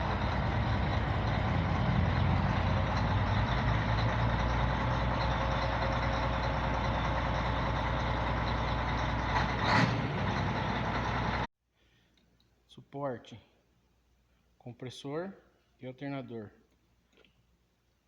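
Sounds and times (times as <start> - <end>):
truck diesel engine running: 0.0 - 11.5.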